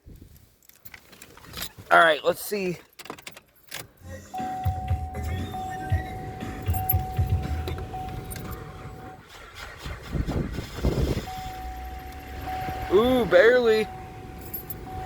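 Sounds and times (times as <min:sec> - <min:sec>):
car engine cranking: 0:02.9 - 0:15.0
steady high tone: 0:11.3 - 0:15.0.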